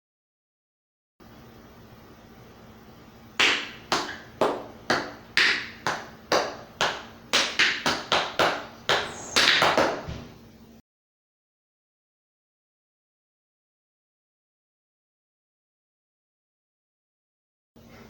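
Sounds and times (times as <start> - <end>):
tap shoes striking floor: 3.4 - 10.3.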